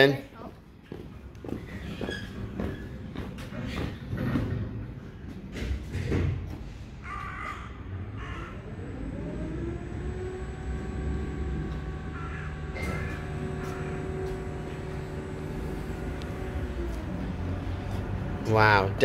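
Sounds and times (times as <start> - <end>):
lift motor whine: 7.8 - 19.0.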